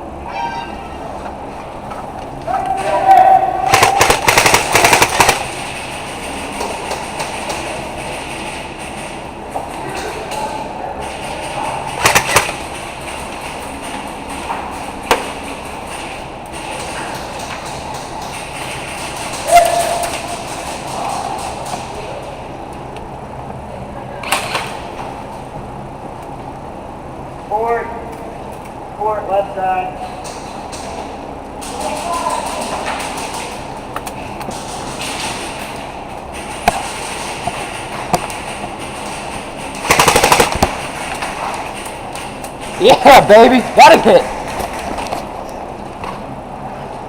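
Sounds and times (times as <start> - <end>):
airsoft gun firing: 3.6 - 5.8, 12.0 - 12.7, 36.5 - 38.5, 39.8 - 41.2.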